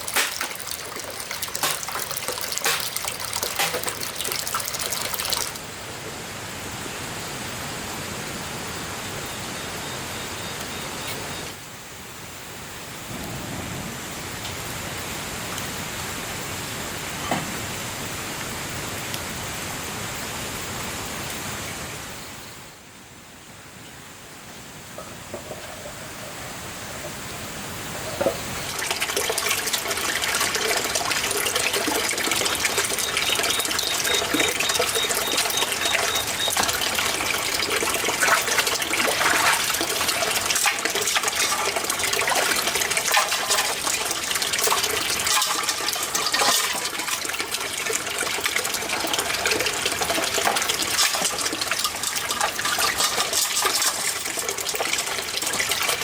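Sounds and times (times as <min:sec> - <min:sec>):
running water splashing: 0:00.0 - 0:05.8, 0:28.0 - 0:56.0.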